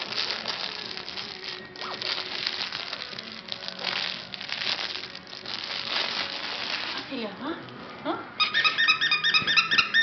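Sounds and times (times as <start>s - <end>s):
wood fire crackling: 0.0s - 7.3s.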